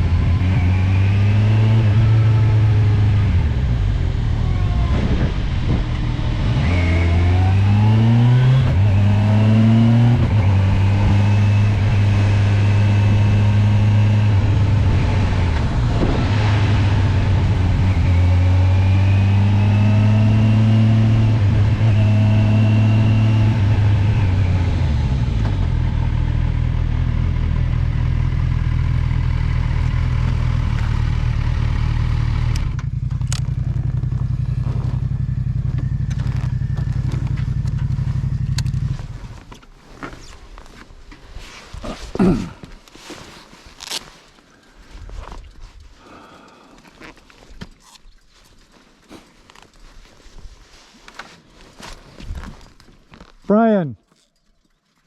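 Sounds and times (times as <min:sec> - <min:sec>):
motorcycle engine accelerating: 0:00.0 - 0:39.6
wind rushing: 0:14.5 - 0:17.9.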